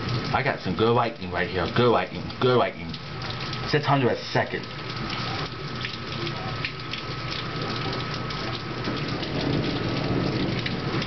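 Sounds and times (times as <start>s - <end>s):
rain falling: 0.0s - 11.0s
low rumble of thunder: 8.2s - 11.0s.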